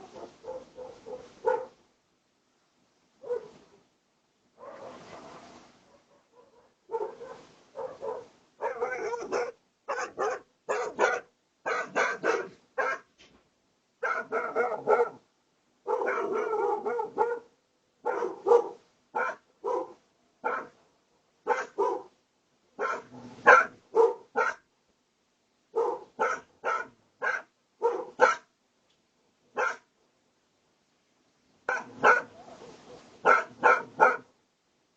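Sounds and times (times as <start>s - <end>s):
dog barking: 0.0s - 1.8s, 3.2s - 3.6s, 4.6s - 13.1s, 14.0s - 15.2s, 15.8s - 20.8s, 21.4s - 22.1s, 22.8s - 24.6s, 25.7s - 28.5s, 29.5s - 29.9s, 31.7s - 32.4s, 33.2s - 34.3s.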